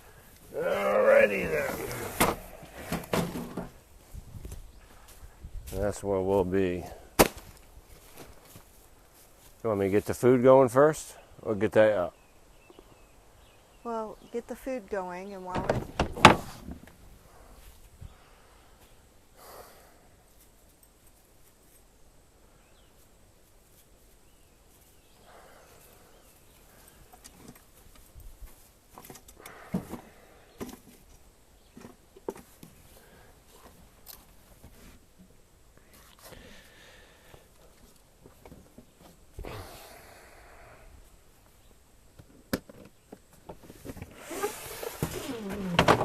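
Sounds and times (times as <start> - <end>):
rustling: 0.0 - 5.9, 43.2 - 46.0
rustle: 0.0 - 46.0
camp gear clicks and knocks: 1.5 - 3.8, 15.5 - 17.0, 27.1 - 32.8, 42.1 - 46.0.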